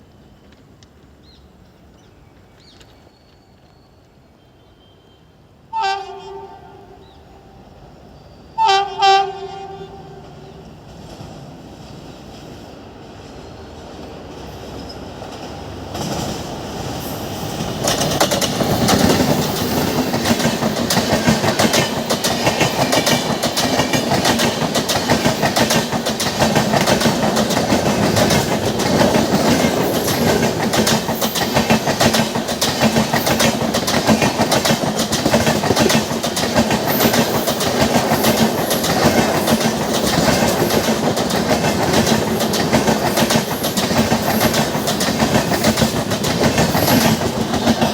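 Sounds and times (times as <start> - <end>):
train passing: 0.0 - 47.9
wheels clicking over rail joints: 17.5 - 47.9.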